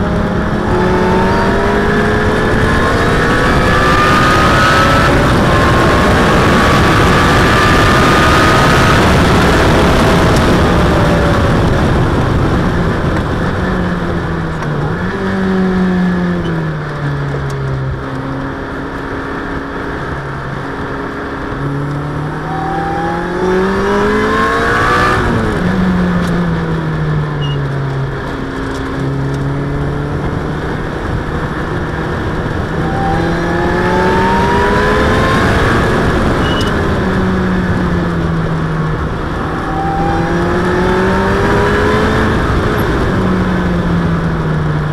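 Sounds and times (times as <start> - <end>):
car engine revving hard: 0.0 - 13.8, 21.2 - 26.2, 29.0 - 38.2, 38.9 - 43.8
throttle blips on downshifts: 0.0 - 44.9.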